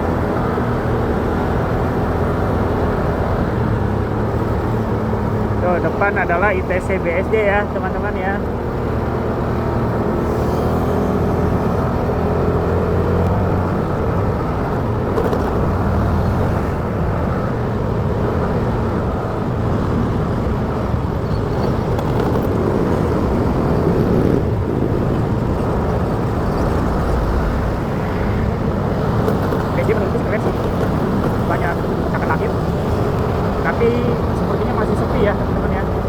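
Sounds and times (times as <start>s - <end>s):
motorcycle engine hum: 0.0s - 36.0s.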